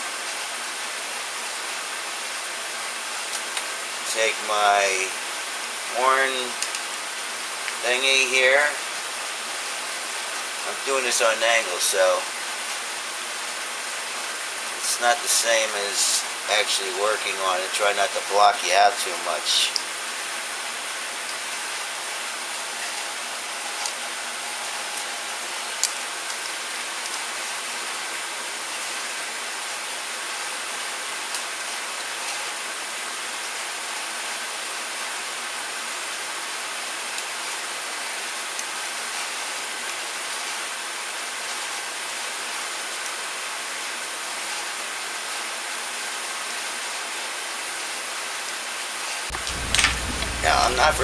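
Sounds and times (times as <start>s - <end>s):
steady hiss: 0.0s - 29.1s, 49.3s - 51.0s.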